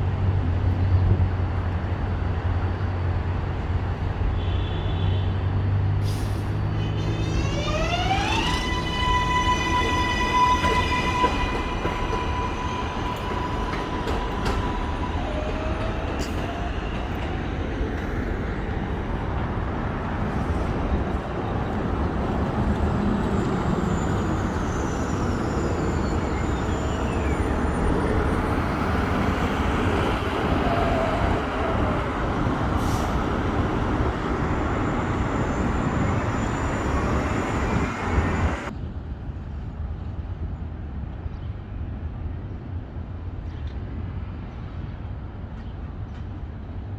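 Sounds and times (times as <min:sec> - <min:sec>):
train wheels rumbling on track: 0:06.0 - 0:39.6.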